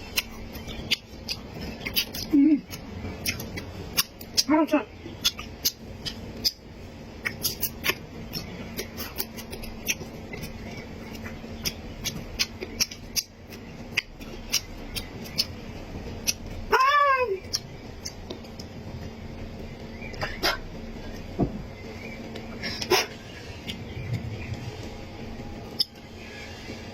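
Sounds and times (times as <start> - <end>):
chewing and lip smacking: 0.0 - 6.6, 7.2 - 16.6, 17.4 - 19.2
food crunching and clicking: 0.0 - 16.6, 17.4 - 20.4
person humming: 2.3 - 2.7.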